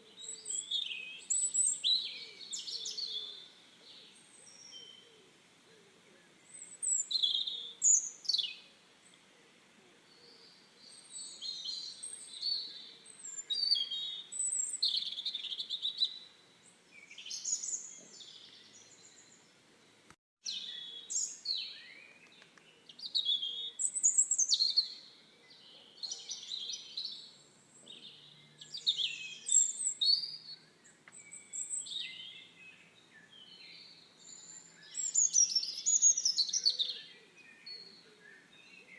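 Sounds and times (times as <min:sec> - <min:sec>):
birds chirping and whistling: 0:00.2 - 0:03.4, 0:06.5 - 0:08.6, 0:10.3 - 0:16.2, 0:17.0 - 0:19.4, 0:23.0 - 0:25.1, 0:26.0 - 0:38.9.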